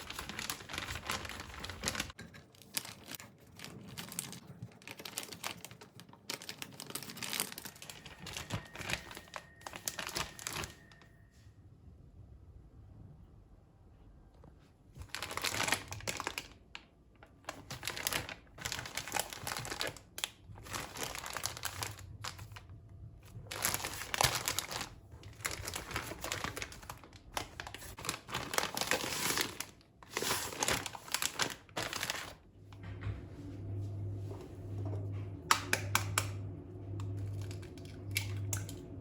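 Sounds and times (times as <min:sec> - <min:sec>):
packaging crinkling: 0:00.0 - 0:11.0, 0:15.0 - 0:22.6, 0:23.3 - 0:32.5.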